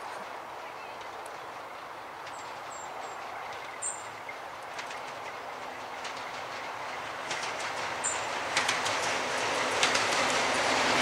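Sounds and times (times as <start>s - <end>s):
train rumble: 0.0s - 11.0s
wheel clicks over rail joints: 2.2s - 10.6s.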